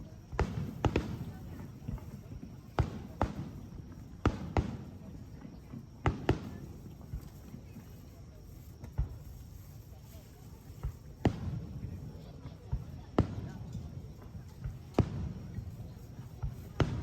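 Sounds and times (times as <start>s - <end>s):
fireworks bangs: 0.0s - 7.5s, 12.7s - 17.0s
low background murmur: 0.0s - 17.0s.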